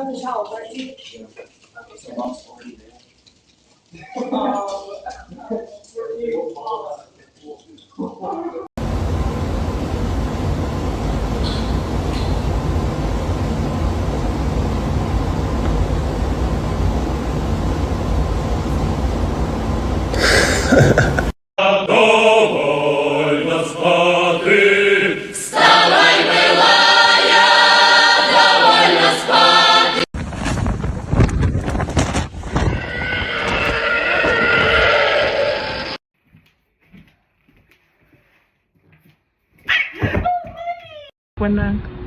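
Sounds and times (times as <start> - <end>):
low rumble: 8.8 - 21.3
voices singing in chorus: 20.2 - 30.1.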